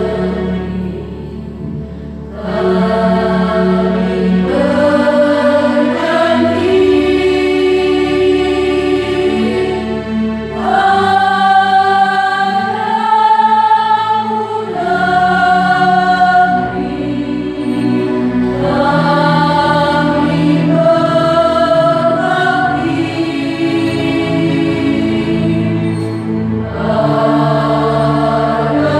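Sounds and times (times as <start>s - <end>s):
choir singing long notes: 0.0s - 28.9s.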